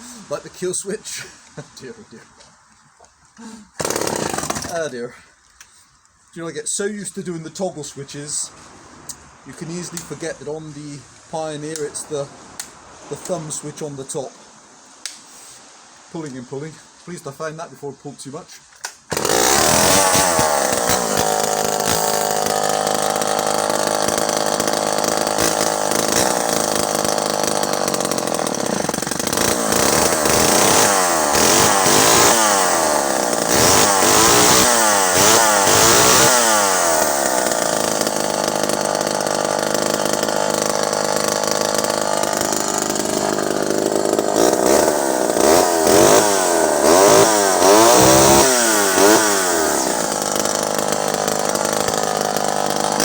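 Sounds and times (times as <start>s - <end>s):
chainsaw revving: 3.8s - 4.9s, 19.1s - 53.0s.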